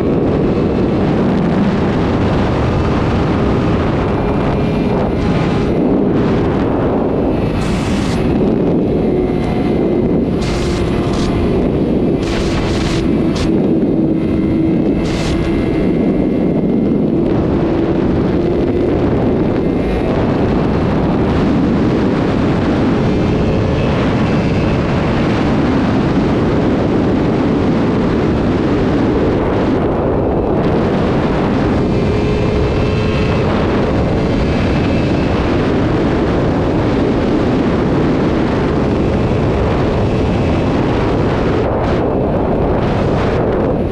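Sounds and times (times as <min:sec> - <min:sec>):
motorcycle engine at speed: 0:00.0 - 0:43.9
wind rush on microphone: 0:00.0 - 0:43.9
engine crackles: 0:00.1 - 0:27.4.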